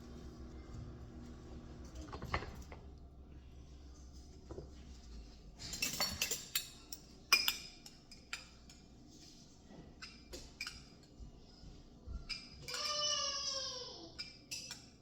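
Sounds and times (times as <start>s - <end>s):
dishes and utensils clinking: 5.6s - 9.0s, 9.7s - 11.2s, 12.3s - 13.3s, 14.1s - 15.0s.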